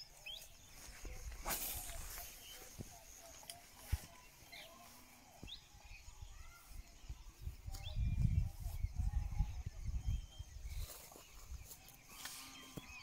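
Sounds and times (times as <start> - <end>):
bird chirps: 0.0 - 13.0.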